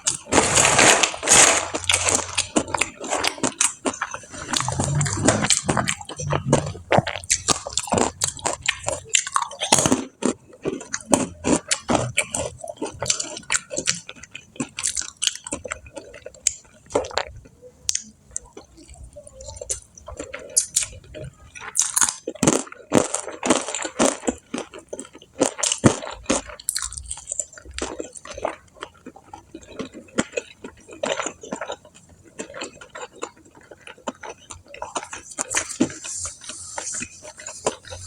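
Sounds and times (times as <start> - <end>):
chewing and crunching food: 0.0 - 38.0
wet mouth sounds: 1.2 - 14.1, 32.6 - 38.0.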